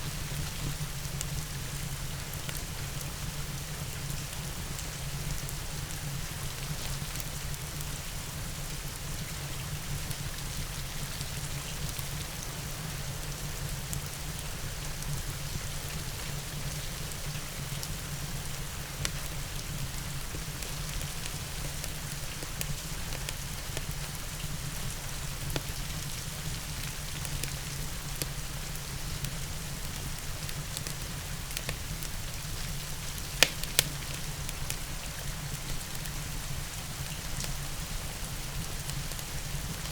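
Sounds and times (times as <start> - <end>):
steady rain: 0.0 - 39.9
fireplace crackling: 30.4 - 36.0
sharp pops: 33.2 - 34.4.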